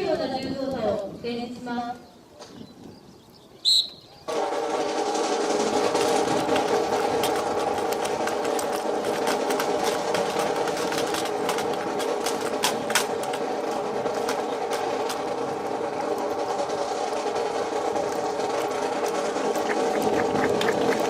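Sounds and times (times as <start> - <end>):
sharp clacks: 3.8 - 21.0
steady machine hum: 4.3 - 21.0.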